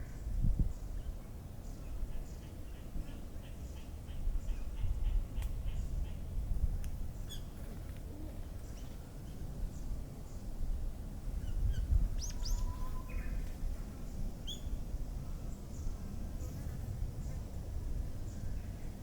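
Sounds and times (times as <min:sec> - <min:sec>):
wild birds chirping: 0:11.4 - 0:16.5.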